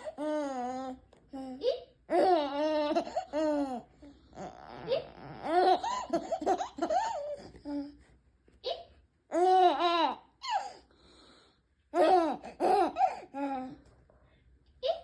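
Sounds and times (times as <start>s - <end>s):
baby laughing: 0.0s - 7.9s, 8.6s - 10.8s, 11.9s - 13.8s.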